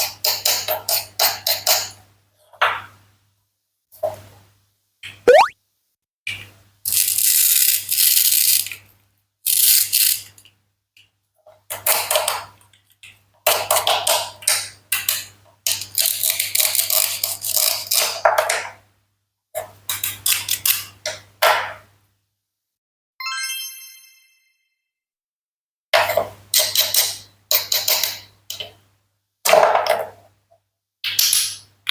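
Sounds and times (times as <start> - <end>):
bright chime: 23.2 - 24.7.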